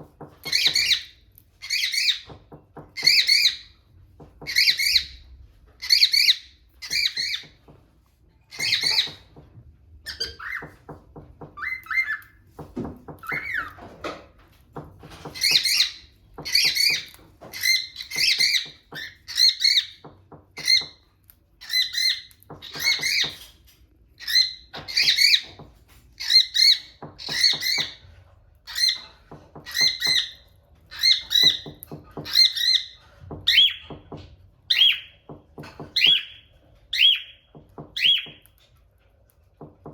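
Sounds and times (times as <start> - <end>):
cockatiels calling shrilly: 11.6 - 12.4, 13.2 - 13.8, 36.0 - 37.4.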